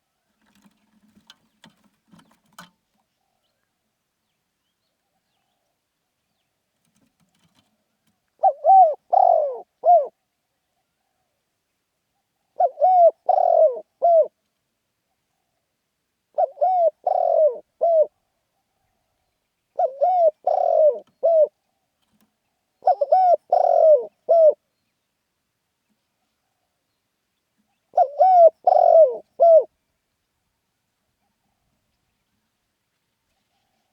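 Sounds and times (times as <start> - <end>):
dove cooing: 8.4 - 10.2, 12.5 - 14.4, 16.3 - 18.2, 19.7 - 21.6, 22.8 - 24.6, 27.9 - 29.7.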